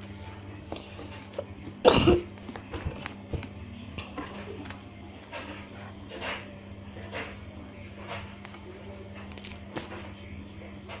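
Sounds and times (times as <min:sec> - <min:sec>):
person coughing: 0:01.8 - 0:02.3.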